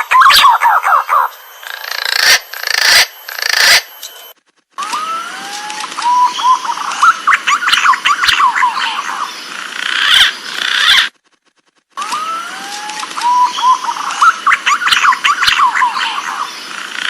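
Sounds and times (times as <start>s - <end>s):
pigeon whistled song: 0.0s - 1.4s, 6.0s - 9.0s, 13.2s - 16.4s.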